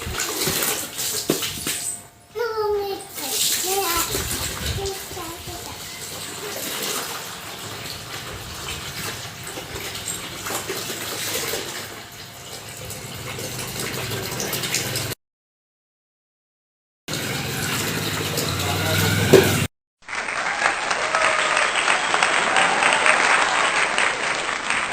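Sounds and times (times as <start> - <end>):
water from a hose splashing: 0.0 - 15.2, 17.1 - 19.7.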